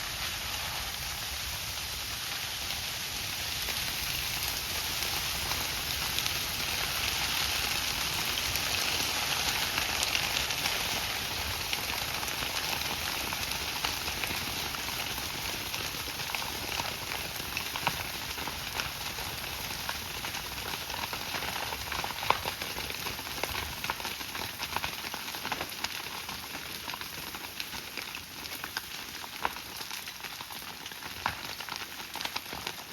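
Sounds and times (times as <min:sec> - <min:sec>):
fire crackling and popping: 0:00.0 - 0:32.9.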